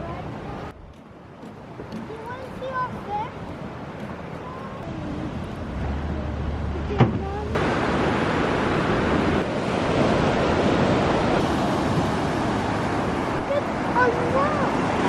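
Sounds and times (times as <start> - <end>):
ocean surf: 0.0 - 15.0.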